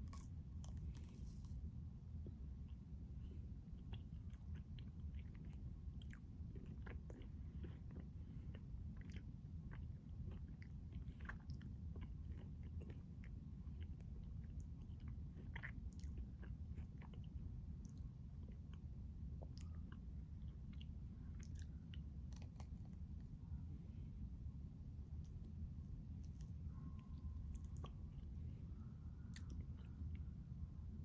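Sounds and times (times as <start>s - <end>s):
chewing ice cream bar crunches: 0.0s - 1.6s, 3.8s - 18.8s, 19.4s - 23.3s
steady low hum: 0.0s - 31.0s.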